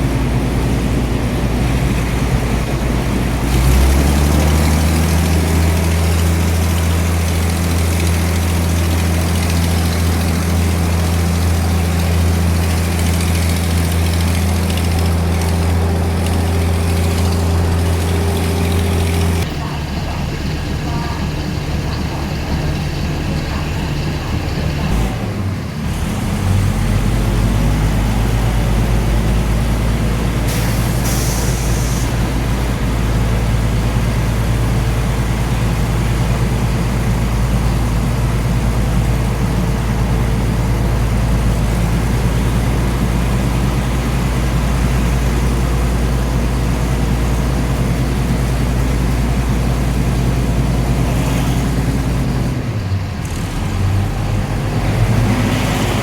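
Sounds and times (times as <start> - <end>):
diesel train engine drone: 0.0 - 56.0
brief hiss: 30.5 - 32.2.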